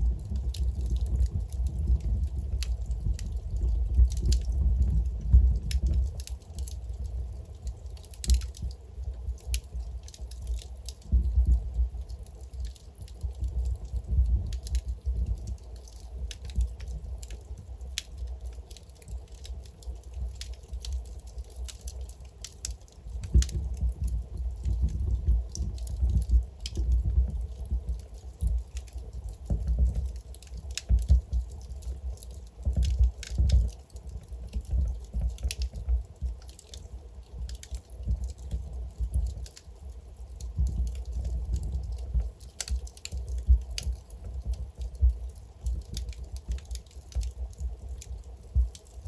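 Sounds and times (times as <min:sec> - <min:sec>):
logs crackling and popping: 0:00.0 - 0:49.0
low fire rumble: 0:00.0 - 0:49.0.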